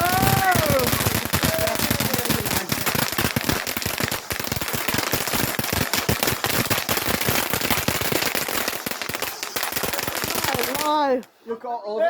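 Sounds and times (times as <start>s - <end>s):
fireworks crackling: 0.0s - 11.4s.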